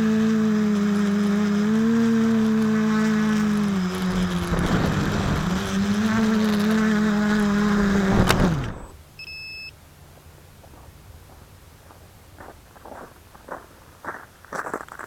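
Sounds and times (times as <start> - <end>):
drone motors whining: 0.0 - 9.1
short electronic beep: 8.7 - 9.7.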